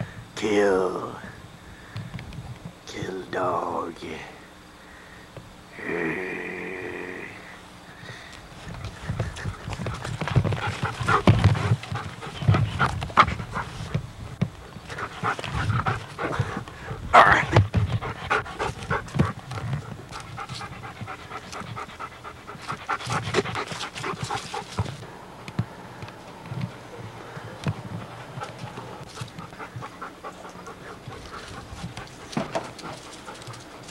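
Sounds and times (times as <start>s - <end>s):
puppy panting: 8.6s - 25.1s, 26.5s - 33.9s.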